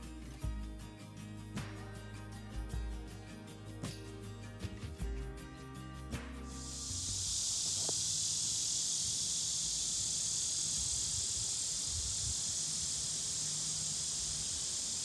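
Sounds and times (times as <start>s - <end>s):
high-pitched insect chorus: 5.8s - 15.0s.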